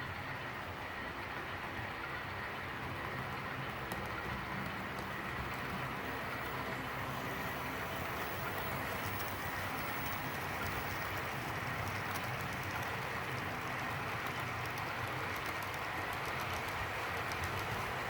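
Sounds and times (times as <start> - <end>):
model train whirring on rails: 0.0 - 18.0
faint high whine: 2.3 - 14.7
light ticks: 3.9 - 5.2, 14.2 - 17.8.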